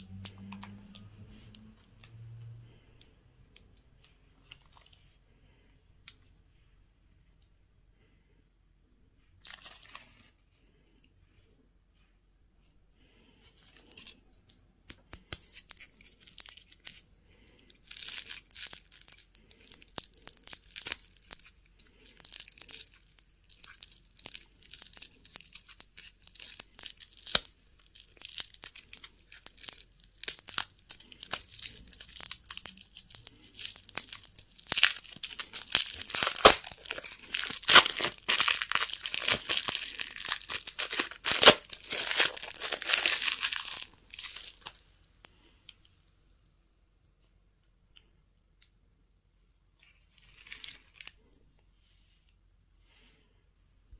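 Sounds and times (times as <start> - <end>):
candy wrappers crinkling and tearing: 9.4 - 10.7, 14.8 - 45.8, 49.8 - 51.4.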